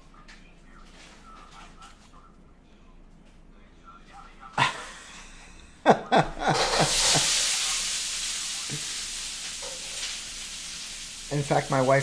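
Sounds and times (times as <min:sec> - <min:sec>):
food sizzling in a frying pan: 0:06.5 - 0:12.0.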